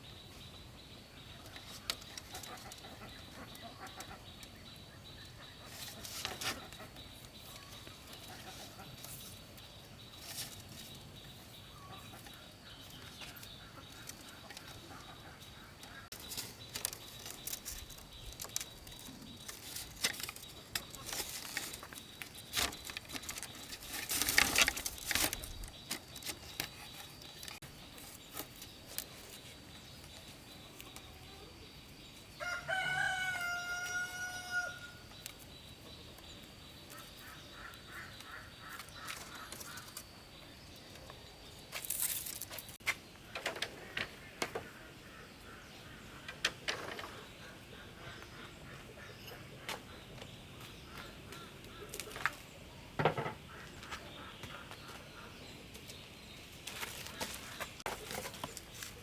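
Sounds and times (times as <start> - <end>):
rustling: 16.1 - 30.9
rooster crowing: 32.4 - 35.0.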